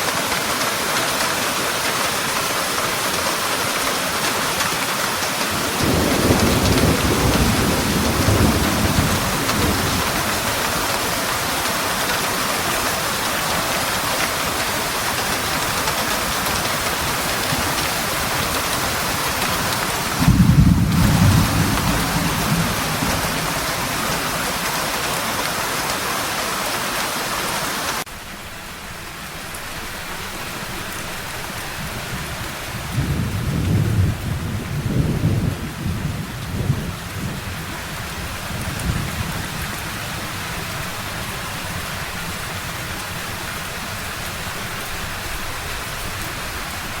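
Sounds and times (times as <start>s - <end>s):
heavy rain: 0.0s - 47.0s
thunder rumbling: 5.2s - 27.0s, 31.2s - 43.0s.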